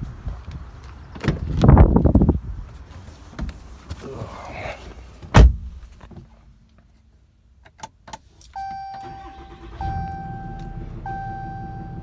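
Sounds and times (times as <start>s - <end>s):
truck door shutting: 5.3s - 5.8s
dashboard warning chime: 8.6s - 12.0s
diesel engine running low: 9.1s - 12.0s.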